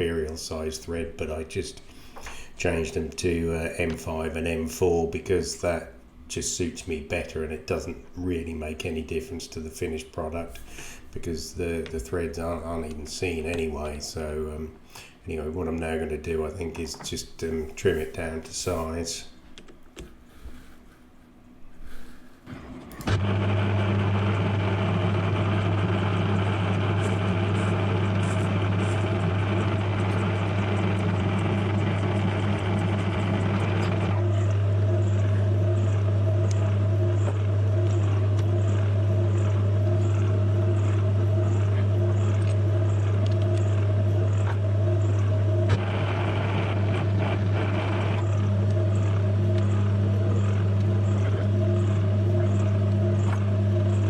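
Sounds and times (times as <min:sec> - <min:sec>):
metal lathe motor hum: 0:22.5 - 0:54.0.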